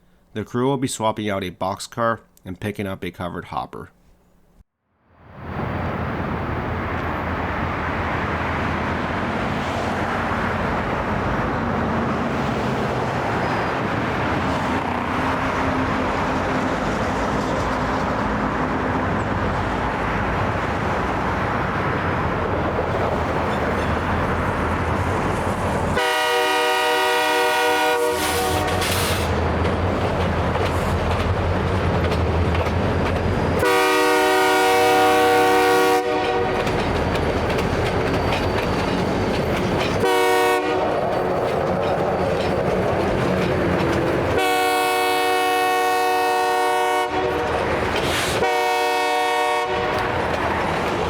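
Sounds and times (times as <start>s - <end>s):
diesel locomotive rumbling: 5.2s - 51.0s
train horn chord: 26.0s - 29.0s, 33.6s - 36.6s, 40.0s - 41.0s, 44.4s - 47.6s, 48.4s - 50.0s.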